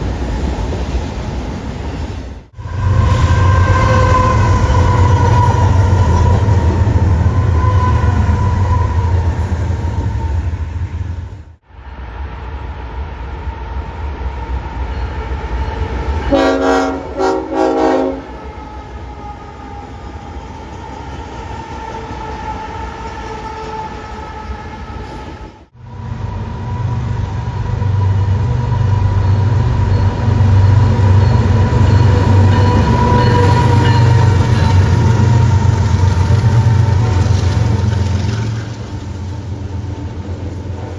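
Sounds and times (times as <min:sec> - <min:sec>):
train rumbling past: 0:00.0 - 0:40.9
train horn blasts: 0:02.6 - 0:09.8, 0:16.2 - 0:19.8, 0:28.8 - 0:37.6.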